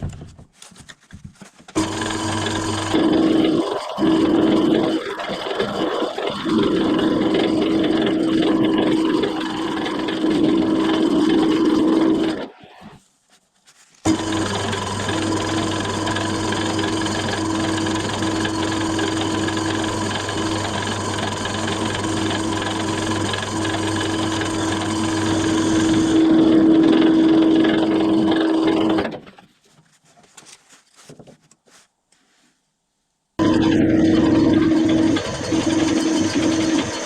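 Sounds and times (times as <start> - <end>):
electric motor humming: 1.8 - 5.0, 14.1 - 29.0.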